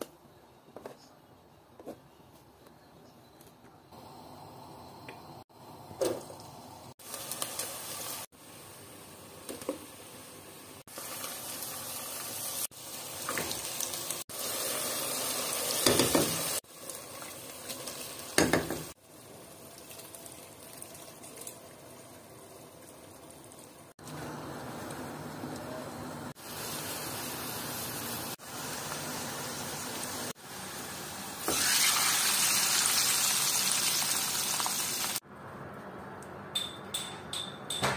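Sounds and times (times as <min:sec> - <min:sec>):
onions frying in oil: 0:06.0 - 0:35.2.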